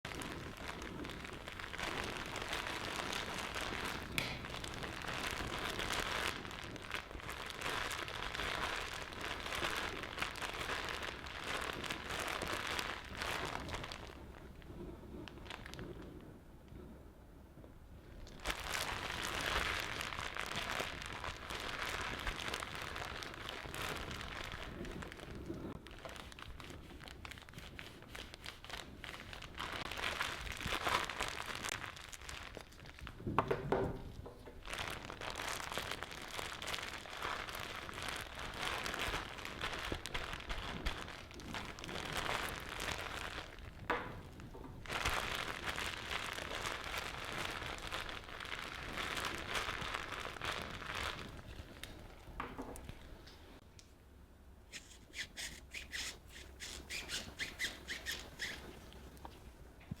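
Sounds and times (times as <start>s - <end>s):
brief pitched sound: 54.7s - 58.6s
scrubbing plastic figure: 54.7s - 58.8s.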